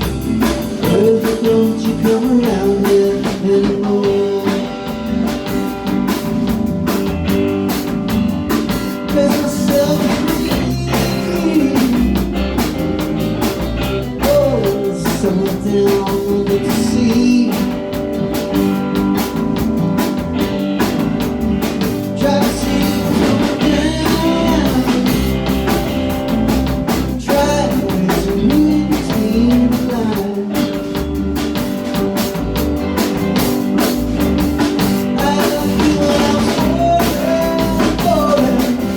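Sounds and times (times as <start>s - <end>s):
person singing: 0.0s - 5.3s, 8.9s - 12.6s, 14.0s - 18.2s, 21.9s - 25.8s, 26.9s - 32.0s, 34.8s - 38.9s
drum kit: 0.0s - 38.9s
electric guitar: 0.0s - 38.9s.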